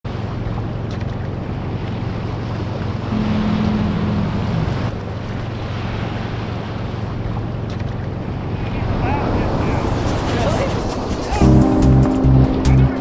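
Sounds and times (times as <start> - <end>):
ocean surf: 0.1 - 13.0
low steady tones: 3.1 - 5.8.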